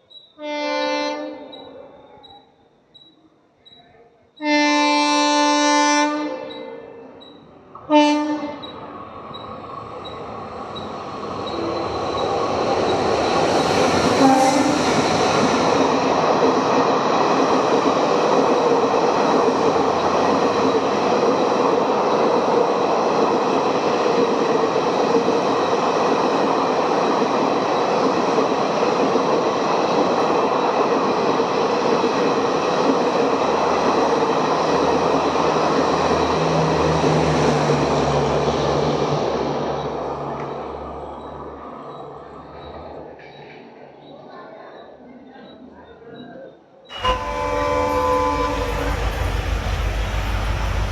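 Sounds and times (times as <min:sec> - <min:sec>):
train horn: 0:00.4 - 0:01.8, 0:04.4 - 0:07.2, 0:07.8 - 0:08.8, 0:14.2 - 0:15.0, 0:46.9 - 0:50.9
train wheels rushing on rail: 0:07.2 - 0:44.1, 0:46.9 - 0:50.9.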